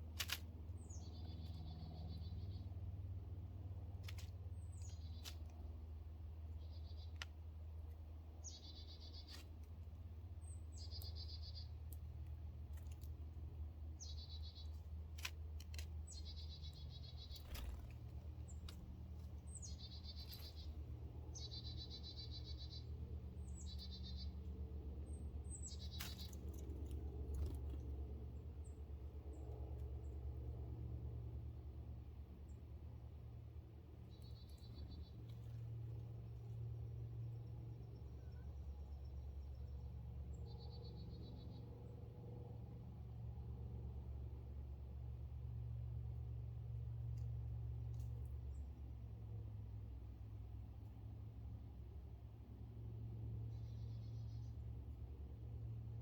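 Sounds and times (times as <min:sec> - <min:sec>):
songbird singing trill: 0:00.7 - 0:02.8, 0:04.4 - 0:05.6, 0:06.4 - 0:07.3, 0:08.2 - 0:09.6, 0:10.4 - 0:12.3, 0:13.9 - 0:15.0, 0:15.9 - 0:26.8, 0:36.6 - 0:41.8.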